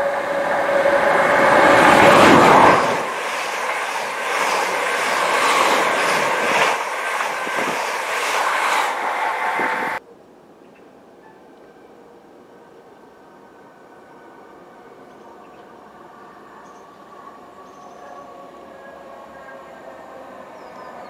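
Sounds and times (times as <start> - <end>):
train rushing past: 0.0 - 10.0
train wheels clacking on rails: 0.0 - 10.0.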